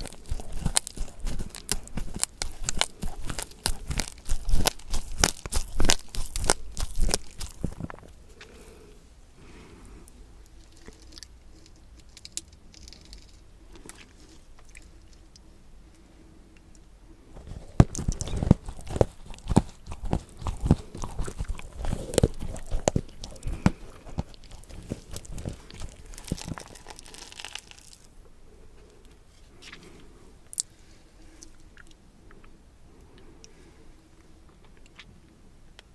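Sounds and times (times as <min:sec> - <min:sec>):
person chewing crisp food: 0:00.0 - 0:08.9, 0:17.4 - 0:28.1.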